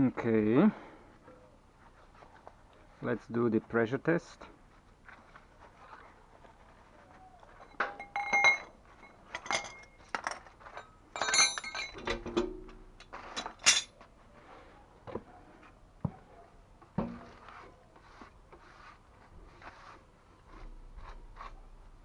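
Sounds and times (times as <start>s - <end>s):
metal tools clinking on pipes: 7.6s - 14.0s.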